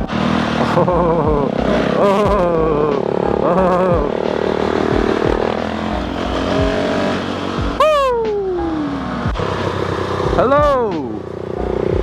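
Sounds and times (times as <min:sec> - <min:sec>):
motorcycle engine at speed: 0:00.0 - 0:12.0
rider shouting woo: 0:07.8 - 0:09.0, 0:10.4 - 0:11.2.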